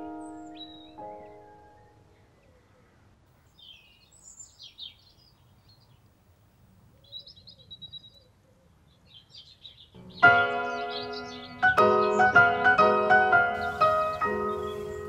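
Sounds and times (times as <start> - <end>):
high bird trill: 0.0 - 2.6, 9.8 - 15.0
birds chirping: 0.0 - 15.0.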